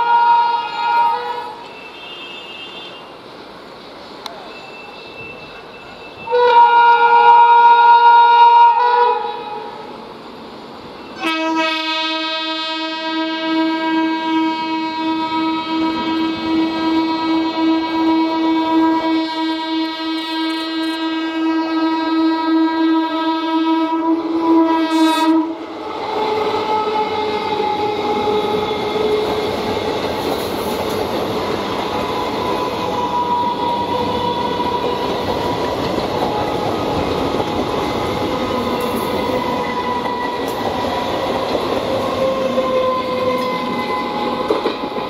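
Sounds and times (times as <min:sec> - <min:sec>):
train horn: 0:00.0 - 0:03.2, 0:06.2 - 0:09.9, 0:11.2 - 0:29.8, 0:32.1 - 0:35.6, 0:42.2 - 0:44.8
train wheels rushing on rails: 0:00.0 - 0:21.4, 0:23.0 - 0:45.0.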